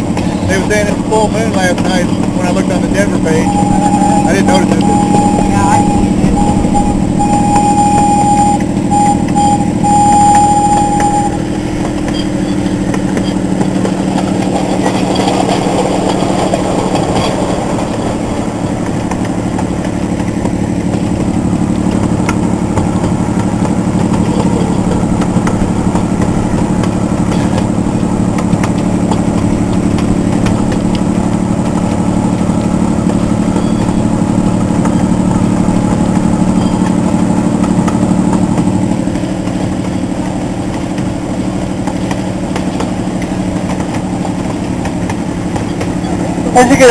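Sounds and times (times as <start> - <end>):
locomotive engine droning: 0.0 - 46.9
steady high tone: 0.9 - 13.4.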